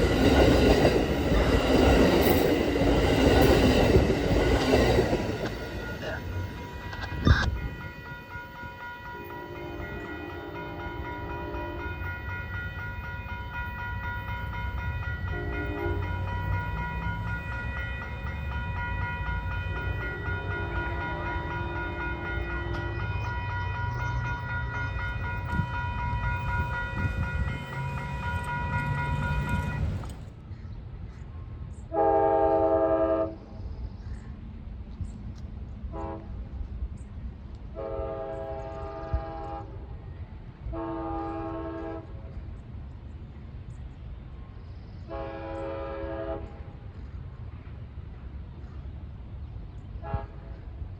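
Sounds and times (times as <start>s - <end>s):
train rumbling past: 0.0s - 50.9s
locomotive air horn blasts: 15.3s - 16.1s, 31.9s - 33.4s, 35.9s - 36.4s, 37.7s - 39.9s, 40.7s - 42.2s, 45.1s - 46.6s, 50.0s - 50.6s.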